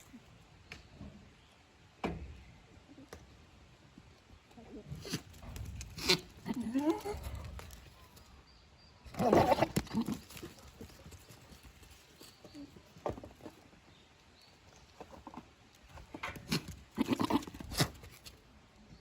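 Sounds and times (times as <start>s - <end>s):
hoof clatter: 9.1s - 18.4s.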